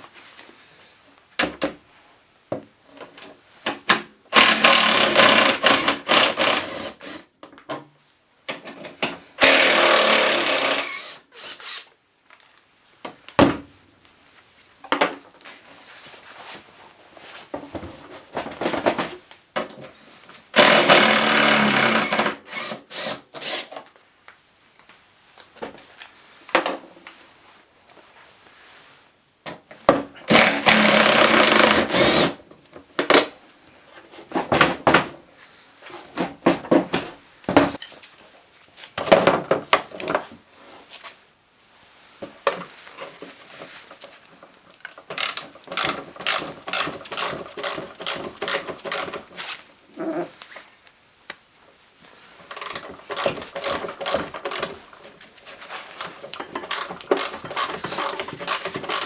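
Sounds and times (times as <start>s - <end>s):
rapid clicking of hand tools: 4.3s - 7.2s, 9.4s - 11.9s, 20.6s - 23.7s, 30.3s - 32.4s, 45.0s - 49.4s, 52.4s - 55.2s, 56.0s - 59.0s
power tool running: 9.4s - 11.8s, 20.6s - 23.6s, 30.3s - 32.3s.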